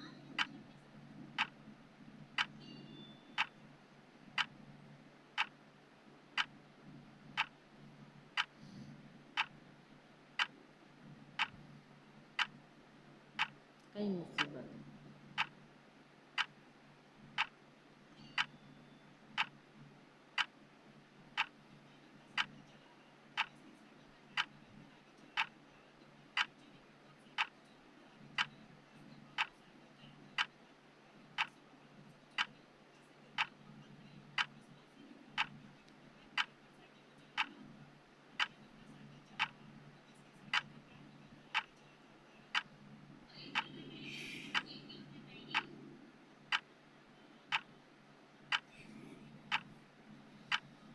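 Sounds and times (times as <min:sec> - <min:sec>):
faint low hum: 0:00.0 - 0:50.9
clock-like ticking: 0:01.4 - 0:01.6, 0:02.3 - 0:03.6, 0:04.3 - 0:04.6, 0:05.4 - 0:05.6, 0:11.4 - 0:11.6, 0:12.4 - 0:12.6, 0:13.4 - 0:13.6, 0:15.3 - 0:15.6, 0:17.4 - 0:17.6, 0:18.2 - 0:18.6, 0:19.4 - 0:19.6, 0:21.4 - 0:21.6, 0:22.4 - 0:22.6, 0:23.4 - 0:23.6, 0:26.4 - 0:26.6, 0:28.4 - 0:28.6, 0:33.4 - 0:33.6, 0:34.4 - 0:34.6, 0:35.4 - 0:35.6, 0:39.4 - 0:39.6, 0:40.5 - 0:40.7, 0:50.5 - 0:50.7.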